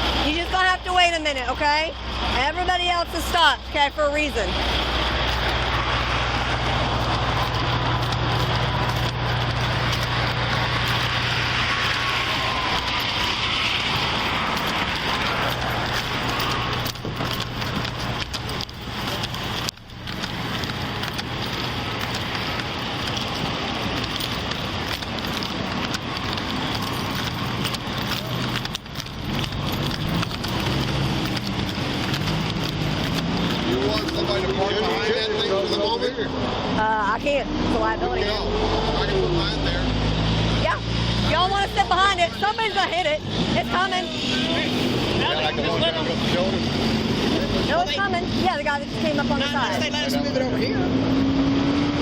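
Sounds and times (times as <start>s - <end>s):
vehicle engines idling: 0.0s - 52.0s
microphone rushing and crackling: 4.4s - 35.0s.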